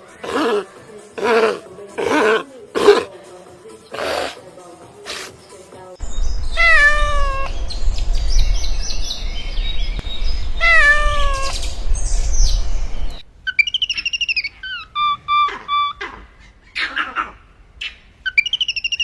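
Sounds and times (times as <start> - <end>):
low rumble: 6.0 - 13.3
cat meowing: 6.6 - 7.5, 10.6 - 11.6.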